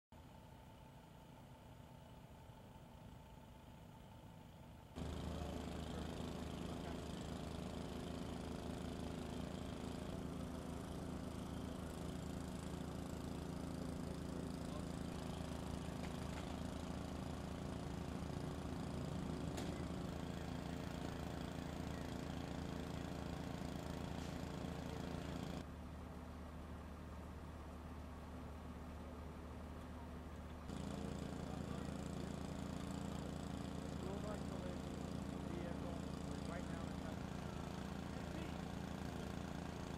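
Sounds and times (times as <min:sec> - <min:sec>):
engine idling: 0:05.0 - 0:25.7, 0:30.2 - 0:39.9.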